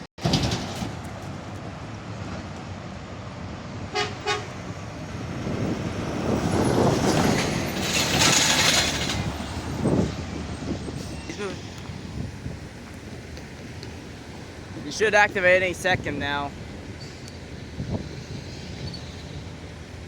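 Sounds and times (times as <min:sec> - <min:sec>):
locomotive horn toots: 0:03.9 - 0:04.7.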